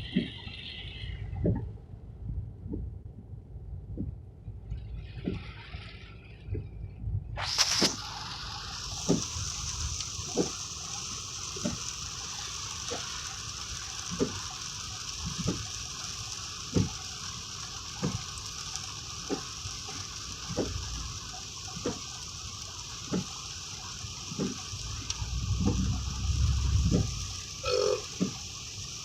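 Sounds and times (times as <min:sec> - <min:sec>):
steady rain falling: 0:07.6 - 0:29.0.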